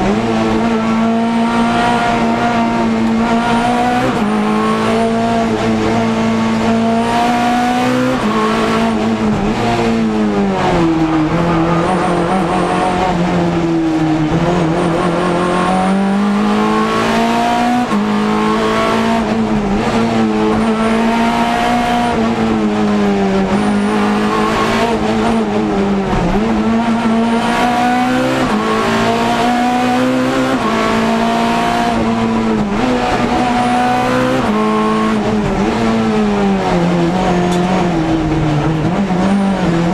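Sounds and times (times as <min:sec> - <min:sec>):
race car engine accelerating: 0:00.0 - 0:39.9.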